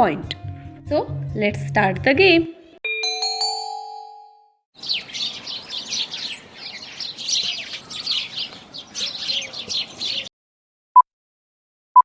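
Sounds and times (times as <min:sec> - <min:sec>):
bird chirping: 0:04.8 - 0:10.3.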